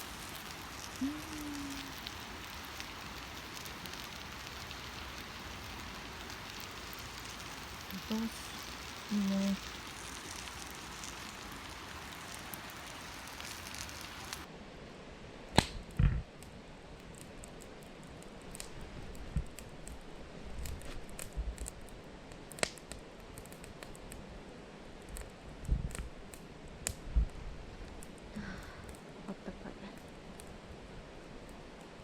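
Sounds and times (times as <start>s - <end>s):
campfire crackling and popping: 0.0s - 14.5s, 15.5s - 24.3s, 25.0s - 29.2s, 29.9s - 32.0s
steady hiss: 0.0s - 14.5s.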